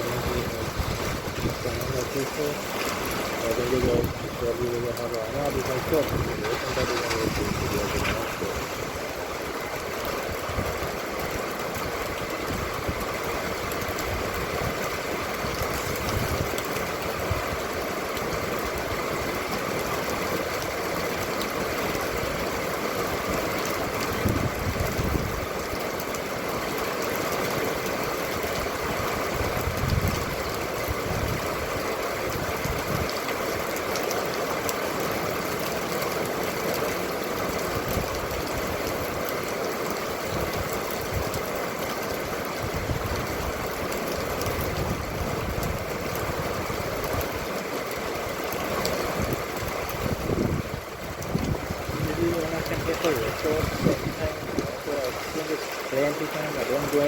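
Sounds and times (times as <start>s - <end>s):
vehicle engine rumbling: 0.0s - 10.6s.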